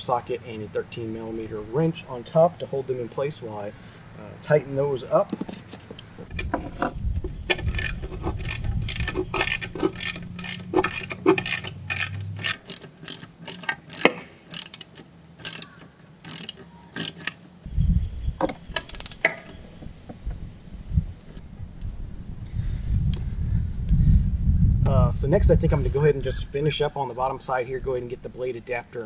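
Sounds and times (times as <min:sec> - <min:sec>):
socket ratchet clicking: 0:07.5 - 0:17.4.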